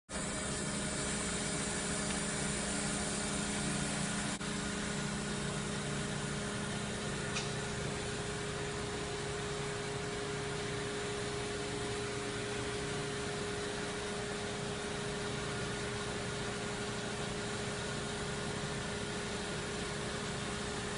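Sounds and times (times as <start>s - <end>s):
machining center humming: 0.1s - 20.9s.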